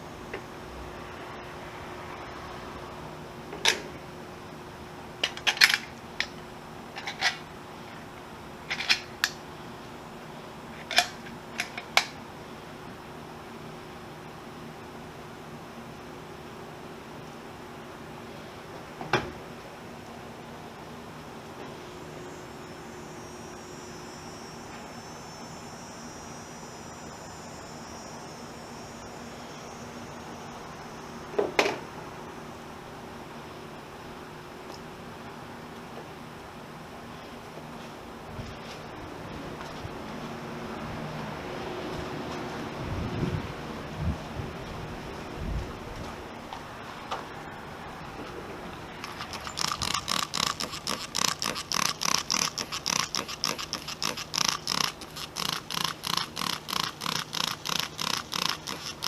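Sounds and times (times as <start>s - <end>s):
steady hiss: 21.3s - 34.0s
high-pitched insect drone: 21.8s - 31.4s, 49.0s - 59.0s.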